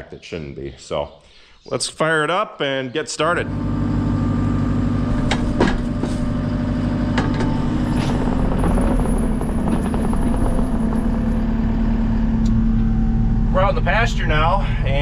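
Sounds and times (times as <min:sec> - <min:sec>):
diesel engine running: 0:03.3 - 0:15.0
short knocks and clanks: 0:05.1 - 0:11.7.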